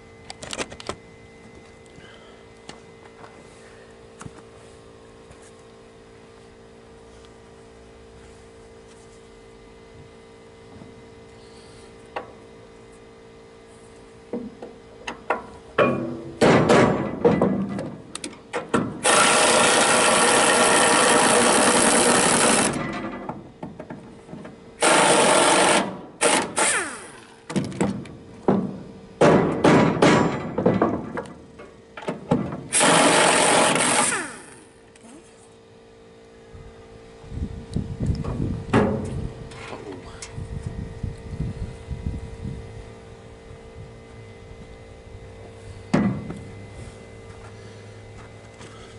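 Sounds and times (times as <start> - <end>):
power drill running in bursts: 19.0 - 22.8, 24.8 - 27.4, 32.7 - 34.8.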